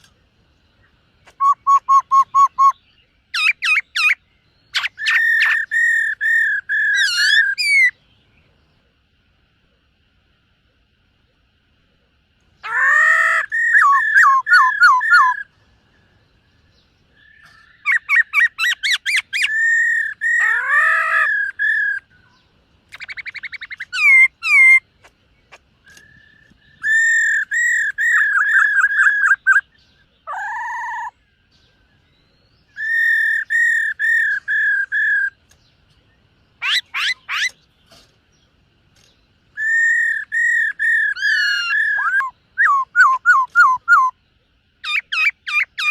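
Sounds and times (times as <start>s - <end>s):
bird singing whistled phrases: 1.2s - 8.0s, 12.6s - 15.5s, 17.2s - 24.8s, 25.8s - 31.3s, 32.0s - 35.4s, 39.5s - 44.2s.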